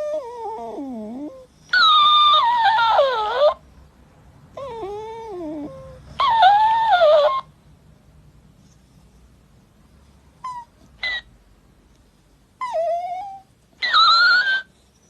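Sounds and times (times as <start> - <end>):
pet animal crying: 0.0 - 3.6, 4.6 - 7.5, 10.4 - 11.3, 12.6 - 14.7.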